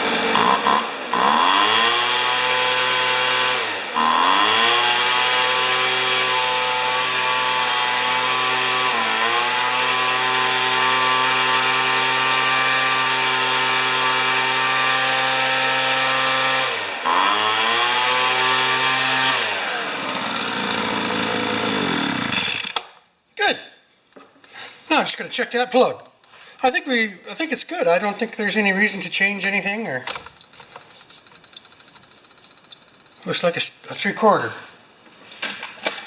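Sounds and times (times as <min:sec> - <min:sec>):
leaf blower engine running: 0:00.0 - 0:22.8.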